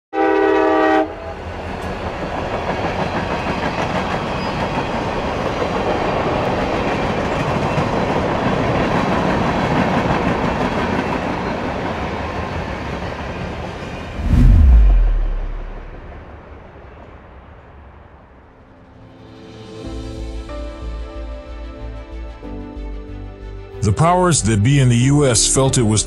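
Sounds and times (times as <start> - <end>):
train horn: 0.2 - 1.3
passing train rumbling: 1.2 - 18.2.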